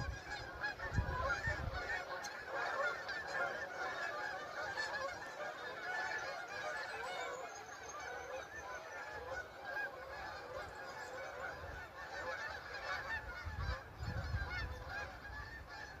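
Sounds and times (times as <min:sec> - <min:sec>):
geese honking: 0:00.0 - 0:16.0.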